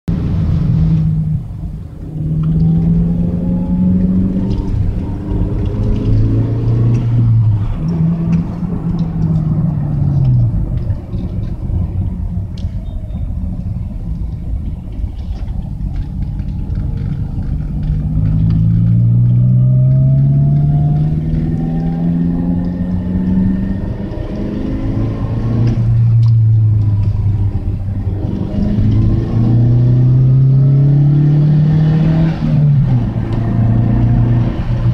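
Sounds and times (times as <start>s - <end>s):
deep rumbling car engine revving: 0.1s - 34.9s.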